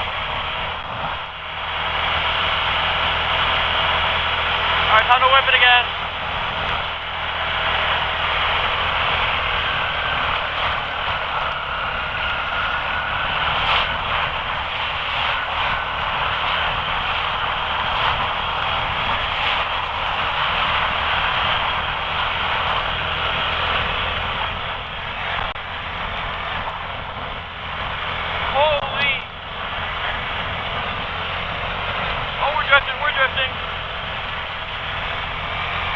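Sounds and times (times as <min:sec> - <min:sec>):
quad engine revving: 0:00.0 - 0:35.9
wind: 0:00.0 - 0:35.9
pouring rain: 0:05.6 - 0:27.2.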